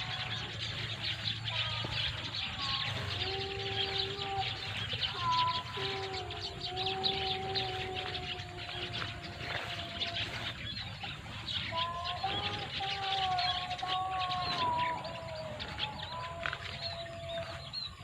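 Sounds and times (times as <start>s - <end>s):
flock of small birds chirping: 0.0s - 18.0s.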